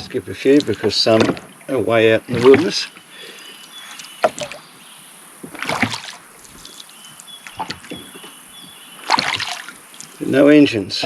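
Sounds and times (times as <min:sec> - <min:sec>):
oar blades splashing water: 0:00.0 - 0:10.6
oar knocking in rowlock: 0:00.6 - 0:01.6, 0:02.3 - 0:02.9, 0:04.2 - 0:04.6, 0:07.5 - 0:09.8
faint high bird calls: 0:01.6 - 0:10.6.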